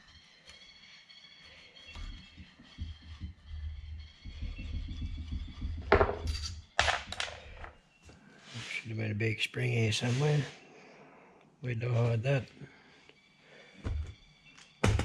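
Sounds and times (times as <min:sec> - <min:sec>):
small metal parts being handled: 0:05.9 - 0:07.7.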